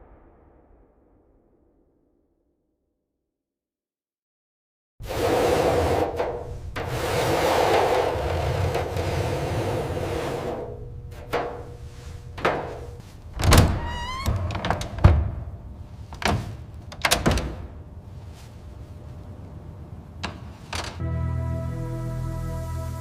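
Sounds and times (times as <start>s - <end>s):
thunks and knocks: 11.2s - 17.8s.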